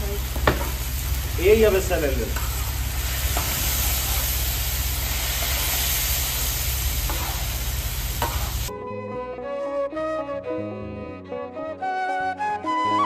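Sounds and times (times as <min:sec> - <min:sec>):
chicken sizzling in a pan: 0:00.0 - 0:08.7
instrumental music: 0:08.7 - 0:13.0.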